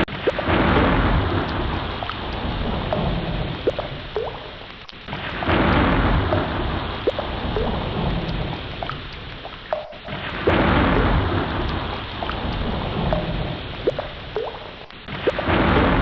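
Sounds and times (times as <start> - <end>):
bubbly plinks: 0.0 - 16.0
ocean water rushing: 0.0 - 16.0.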